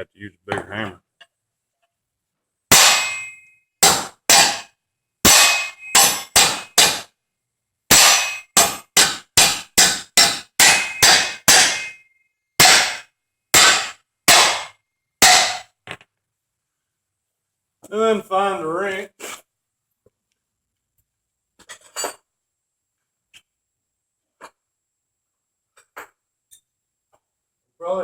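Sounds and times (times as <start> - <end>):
hammer clanging on steel: 2.7 - 4.7, 5.3 - 7.1, 7.9 - 15.7.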